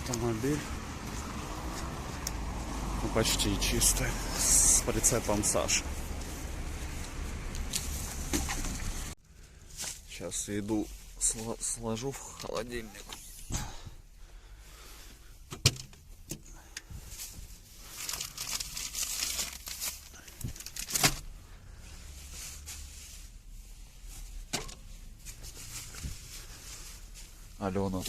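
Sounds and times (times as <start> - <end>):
bags and containers rustling: 16.9 - 28.0.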